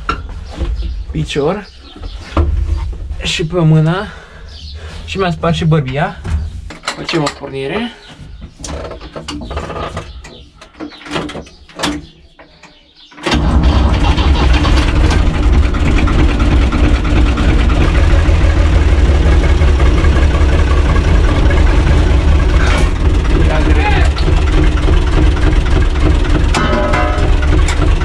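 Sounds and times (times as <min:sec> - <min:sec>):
diesel tractor engine running: 0:13.2 - 0:28.0.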